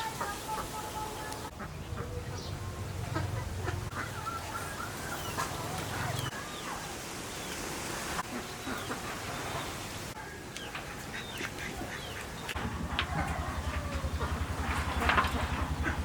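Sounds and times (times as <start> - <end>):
poultry calling: 0.0 - 7.0, 8.2 - 16.0
low rumble: 12.5 - 16.0.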